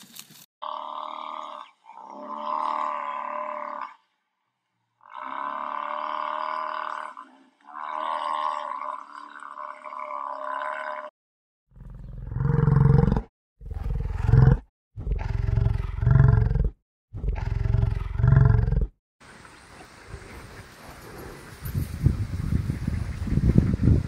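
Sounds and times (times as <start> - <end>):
stag roaring: 11.8 - 18.9
rustle of wind or leaves: 19.2 - 24.0.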